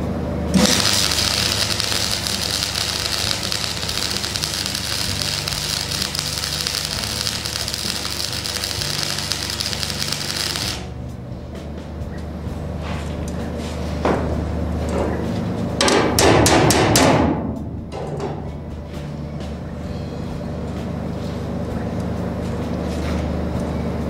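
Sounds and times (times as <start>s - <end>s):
background music: 0.0s - 24.0s
arc welding crackling: 0.5s - 11.1s.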